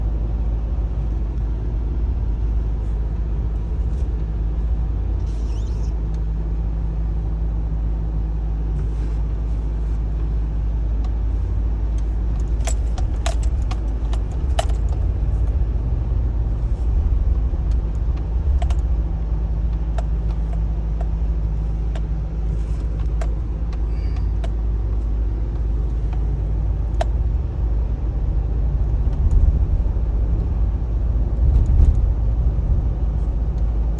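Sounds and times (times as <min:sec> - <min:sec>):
vehicle engine and road rumble: 0:00.0 - 0:33.9
light clicks and rattles: 0:11.9 - 0:15.6, 0:17.6 - 0:19.0, 0:19.7 - 0:27.3.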